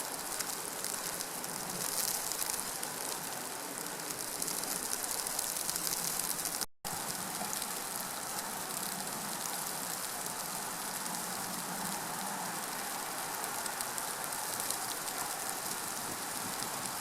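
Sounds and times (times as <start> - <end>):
rain pattering on surfaces: 0.0 - 17.0.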